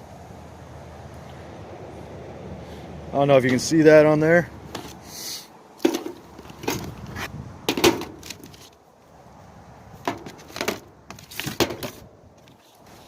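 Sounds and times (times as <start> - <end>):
hand tools knocking and rattling: 5.8 - 6.9, 7.7 - 8.5, 10.0 - 10.8.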